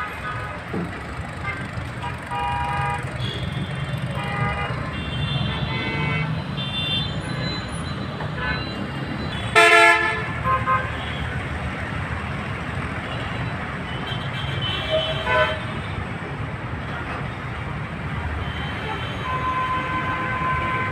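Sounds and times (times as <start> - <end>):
street traffic noise: 0.0 - 20.9
vehicle horn tooting: 8.4 - 11.3.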